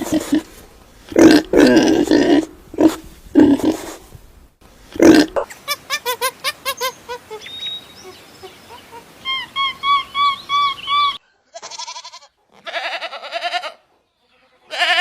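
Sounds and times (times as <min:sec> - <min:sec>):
short high calls: 0:06.8 - 0:12.1
livestock bleating: 0:11.5 - 0:15.0.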